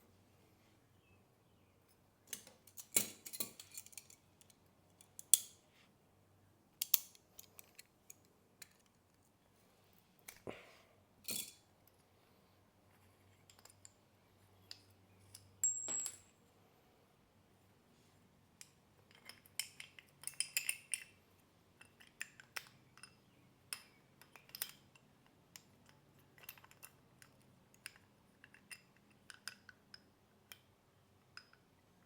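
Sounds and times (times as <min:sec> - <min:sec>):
metal tools clicking and clinking: 0:02.3 - 0:05.5, 0:11.2 - 0:11.6, 0:14.7 - 0:16.3, 0:19.1 - 0:21.2
high metallic ring: 0:15.6 - 0:16.3.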